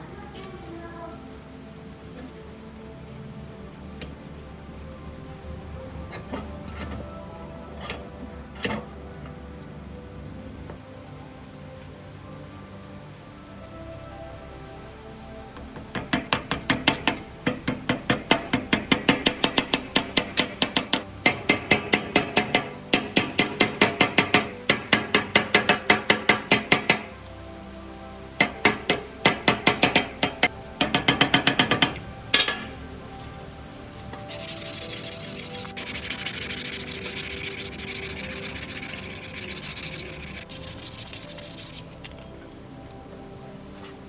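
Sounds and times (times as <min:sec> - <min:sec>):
rapid sharp knocks: 0:15.9 - 0:27.1, 0:28.4 - 0:32.0, 0:34.3 - 0:41.8.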